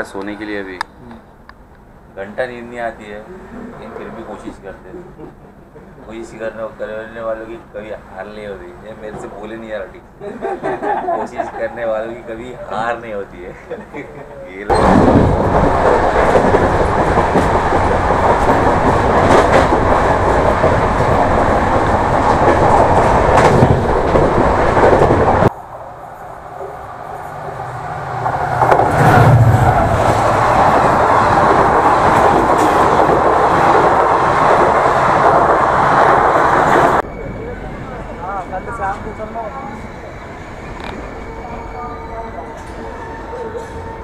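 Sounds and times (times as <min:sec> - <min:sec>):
train wheels rumbling on rails: 0:13.5 - 0:25.5, 0:26.4 - 0:44.0.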